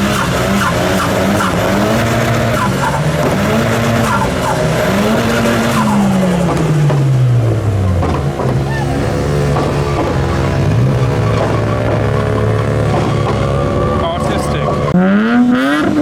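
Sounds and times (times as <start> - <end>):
car engine revving: 0.0 - 16.0
tyres squealing: 0.0 - 16.0.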